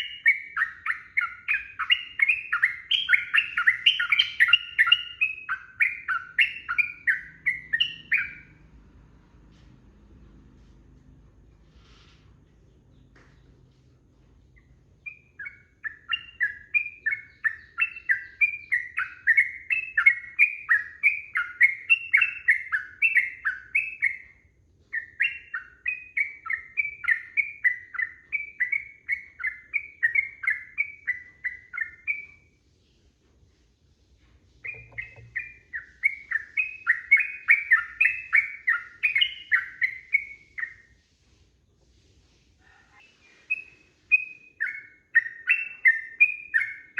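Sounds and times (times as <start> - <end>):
bulbul singing whistled notes: 0.0 - 8.5, 15.0 - 32.5, 34.6 - 40.9, 43.0 - 46.9.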